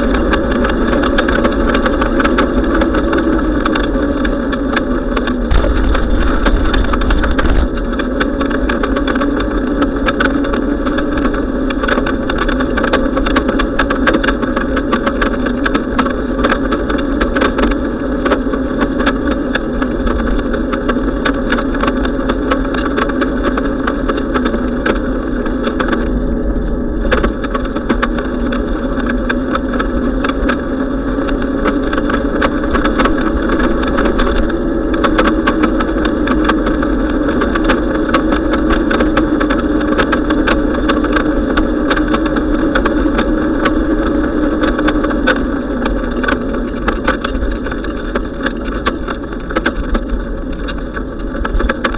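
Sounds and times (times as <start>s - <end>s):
bicycle hum: 0.0s - 51.9s
bicycle ticks and rattles: 0.0s - 51.9s
wind rumble on microphone: 0.0s - 51.9s.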